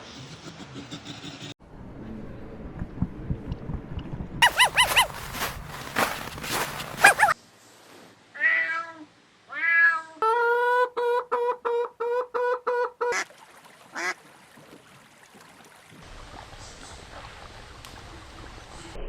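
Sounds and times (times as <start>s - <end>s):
cat meowing: 4.4s - 5.5s.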